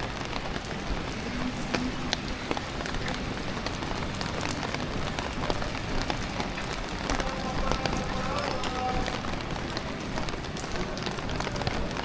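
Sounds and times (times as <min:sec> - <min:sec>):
rain falling on street: 0:00.0 - 0:12.0
sharp drips of water: 0:00.0 - 0:12.0.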